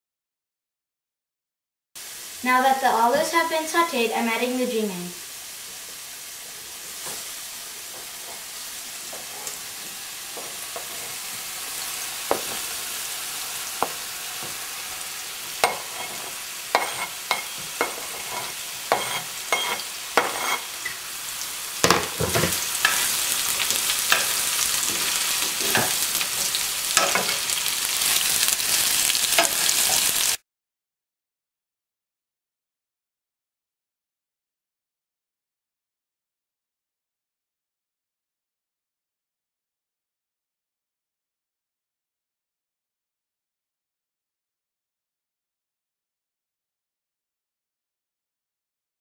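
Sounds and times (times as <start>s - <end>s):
frying sizzle: 2.0s - 30.4s.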